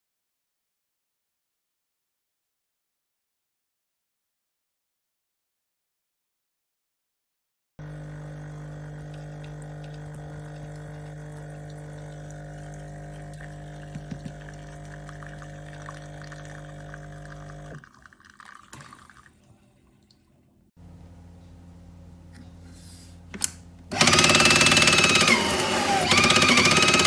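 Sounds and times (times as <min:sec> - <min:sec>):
steady machine hum: 0:07.8 - 0:17.8
espresso machine pump humming: 0:07.8 - 0:19.1, 0:23.9 - 0:27.0.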